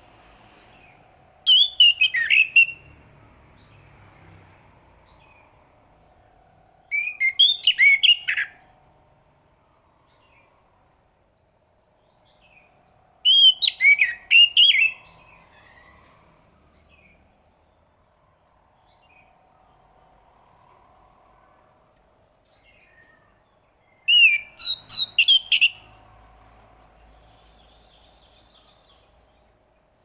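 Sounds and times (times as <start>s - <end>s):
thrush singing whistled notes: 0.7s - 3.0s, 6.9s - 8.8s, 13.2s - 15.2s, 23.9s - 26.0s.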